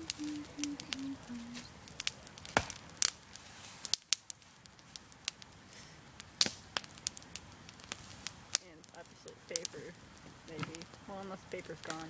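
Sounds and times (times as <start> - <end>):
campfire crackling and popping: 0.0 - 12.0
loud wood snaps: 1.5 - 5.7, 6.3 - 8.7.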